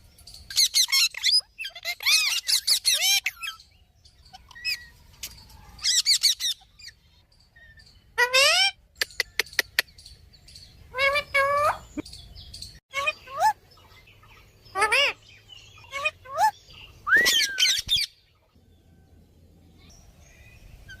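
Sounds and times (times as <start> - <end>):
parrot squawks and calls: 0.5 - 10.0, 10.7 - 12.0, 12.9 - 18.5.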